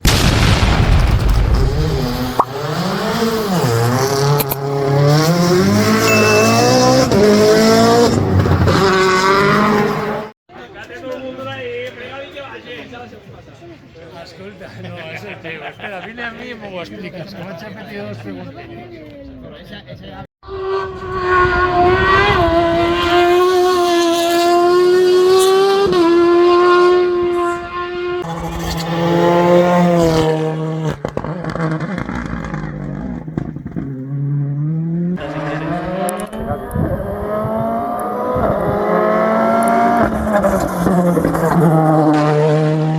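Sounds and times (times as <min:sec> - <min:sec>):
race car engine accelerating: 0:01.8 - 0:10.3, 0:20.5 - 0:42.9.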